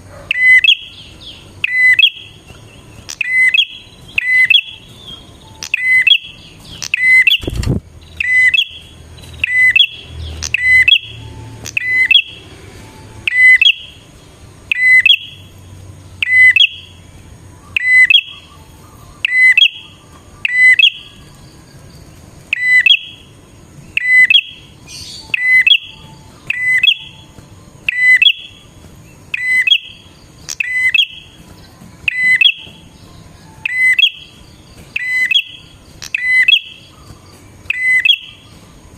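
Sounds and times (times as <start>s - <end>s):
bird calling sharp high notes: 1.6s - 2.4s, 3.0s - 7.6s, 8.2s - 14.1s, 14.7s - 15.5s, 17.6s - 21.3s, 24.0s - 31.4s, 32.0s - 38.6s.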